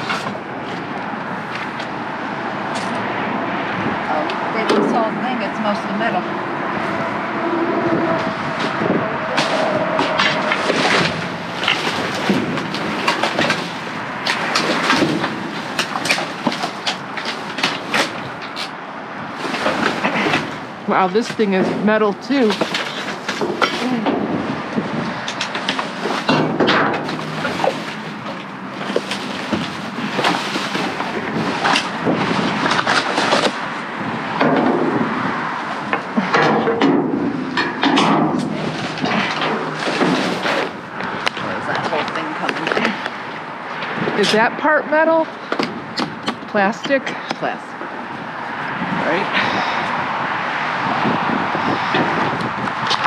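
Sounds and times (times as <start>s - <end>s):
metal junk clanking and rattling: 0.0s - 1.9s, 8.2s - 47.6s.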